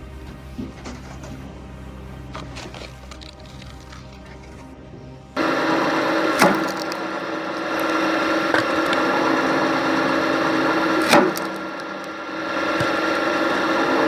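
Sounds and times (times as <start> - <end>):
log splitter engine running: 0.0 - 14.0
wood splitting cracks: 2.3 - 13.8.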